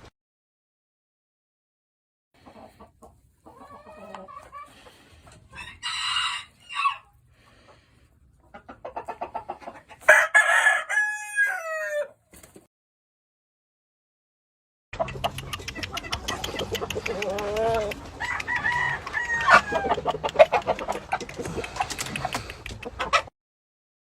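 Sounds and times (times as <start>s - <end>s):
roosters clucking: 2.4s - 12.6s, 15.0s - 23.3s
rooster crowing: 5.6s - 7.1s, 10.1s - 12.2s, 17.4s - 20.3s.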